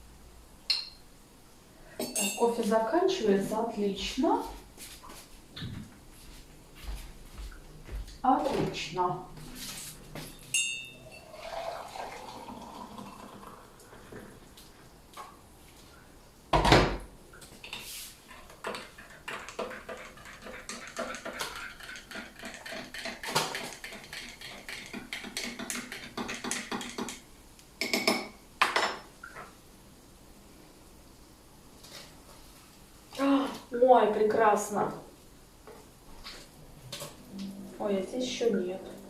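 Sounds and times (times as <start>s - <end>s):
dishes and cutlery clinking: 2.0s - 2.7s, 10.3s - 11.5s, 17.7s - 27.2s.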